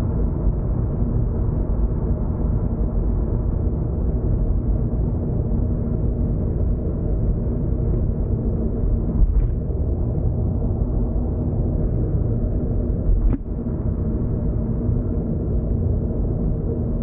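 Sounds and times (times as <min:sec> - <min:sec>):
car interior road and engine rumble: 0:00.0 - 0:17.0.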